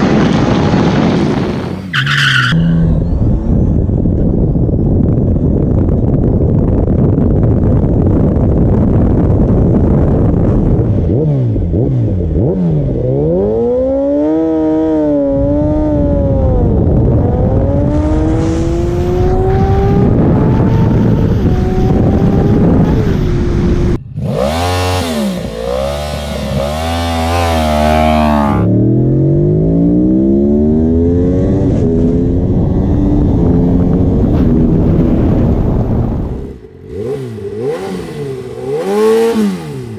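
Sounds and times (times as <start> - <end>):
heavy rushing noise: 0.0 - 1.9, 15.4 - 28.7
motorcycle engine accelerating: 0.0 - 39.9.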